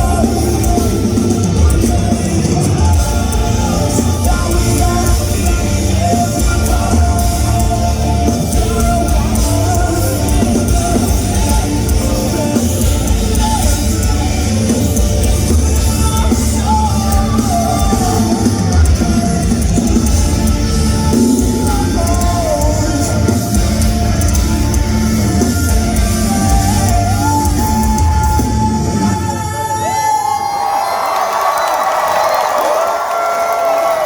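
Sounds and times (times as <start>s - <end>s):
guitars: 0.0s - 29.9s
person singing: 0.0s - 30.6s
drums: 0.0s - 34.0s.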